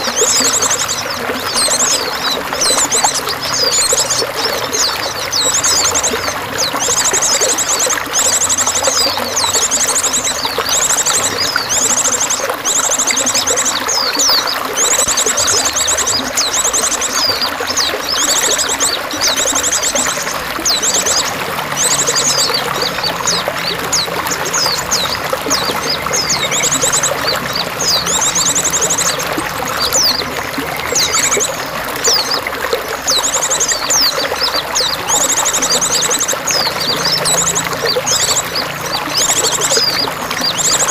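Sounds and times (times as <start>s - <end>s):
songbirds trilling: 0.0s - 40.9s
water trickling: 0.0s - 40.9s.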